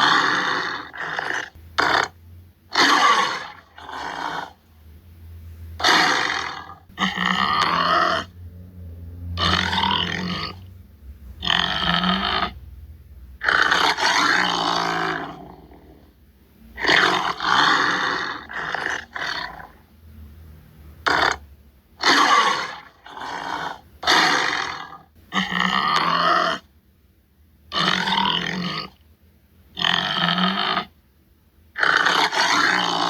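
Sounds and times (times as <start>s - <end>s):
tiger roaring and grunting: 0.0s - 4.7s, 5.8s - 10.8s, 11.4s - 12.7s, 13.4s - 16.2s, 16.8s - 19.9s, 21.0s - 26.7s, 27.7s - 29.0s, 29.7s - 31.0s, 31.8s - 33.0s.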